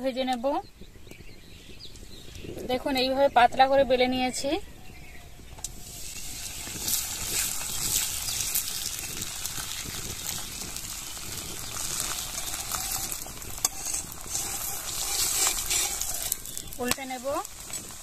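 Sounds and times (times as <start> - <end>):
flatbread sizzling in hot oil: 5.4 - 18.0.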